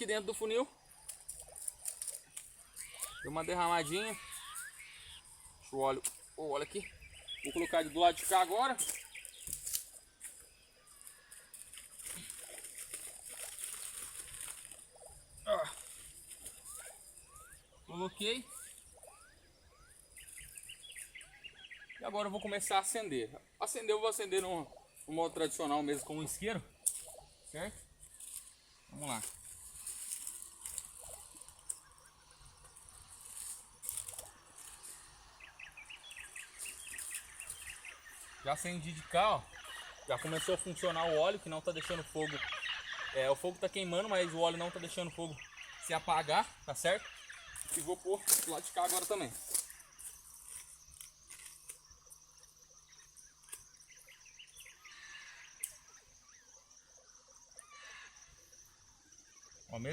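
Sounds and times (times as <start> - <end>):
bird chirping: 0.0 - 59.9
high-pitched insect trill: 0.0 - 59.9
dry leaves rustling and crackling: 1.0 - 3.2, 8.2 - 10.4, 11.4 - 15.0, 27.9 - 31.9, 32.7 - 35.2, 47.6 - 51.8.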